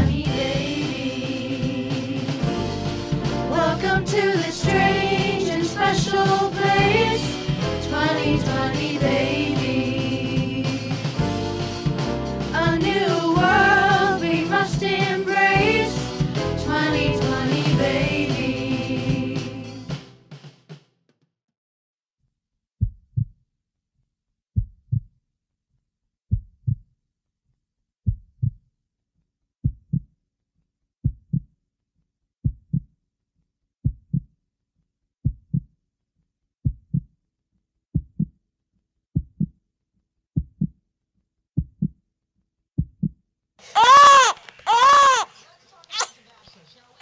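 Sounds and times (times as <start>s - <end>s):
heartbeat lub-dub thumps: 0.0s - 5.4s, 22.8s - 23.3s, 24.6s - 25.1s, 26.3s - 26.8s, 28.1s - 28.6s, 29.6s - 30.1s, 31.0s - 31.5s, 32.4s - 32.9s, 33.8s - 34.3s, 35.2s - 35.7s, 36.6s - 37.1s, 38.0s - 38.3s, 39.2s - 39.5s, 40.4s - 40.8s, 41.6s - 42.0s, 42.8s - 43.2s.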